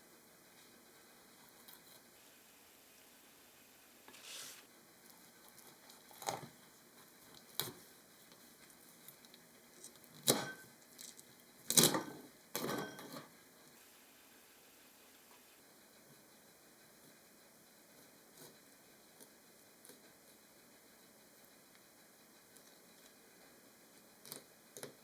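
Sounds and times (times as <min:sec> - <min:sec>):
scrapes and knocks of handling: 0:04.1 - 0:04.7.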